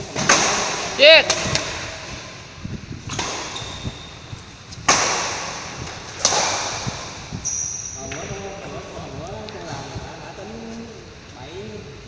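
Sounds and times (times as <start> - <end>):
sharp hits with echo: 4.8 - 8.4.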